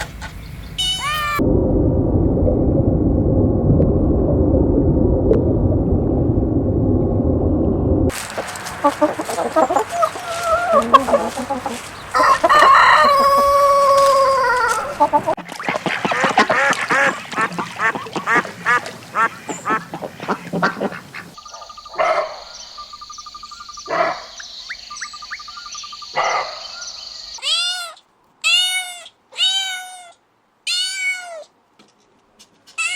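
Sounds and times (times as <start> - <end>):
ducks quacking: 0.0 - 1.4, 8.1 - 22.4
cat meowing: 0.8 - 1.4, 27.4 - 31.5.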